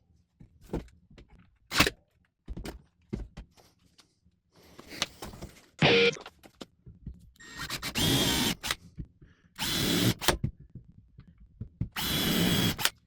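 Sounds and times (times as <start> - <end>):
power drill burst: 7.4 - 8.8, 9.6 - 10.3, 12.0 - 12.9.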